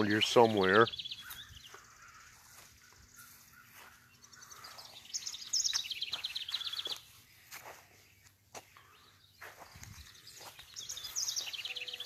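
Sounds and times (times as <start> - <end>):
songbird trilling: 0.0 - 7.7, 8.8 - 12.0
footsteps among plants: 0.0 - 12.0
rustling plants: 9.4 - 12.0.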